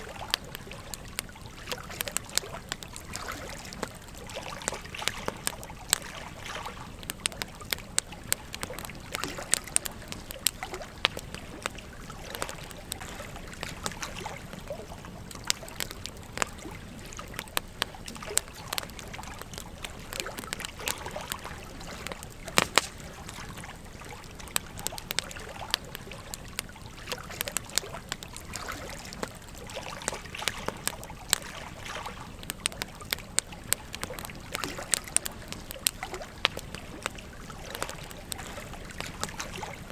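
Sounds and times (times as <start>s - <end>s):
campfire crackling and popping: 0.0s - 39.9s
gentle stream trickling: 0.0s - 39.9s.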